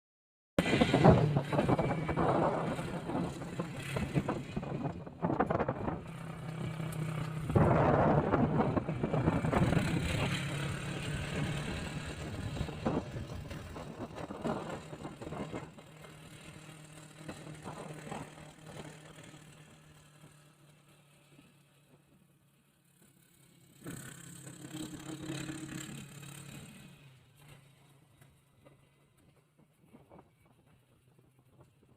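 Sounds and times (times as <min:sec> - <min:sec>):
road noise: 0:00.6 - 0:31.6
vehicle engine running: 0:00.6 - 0:31.8.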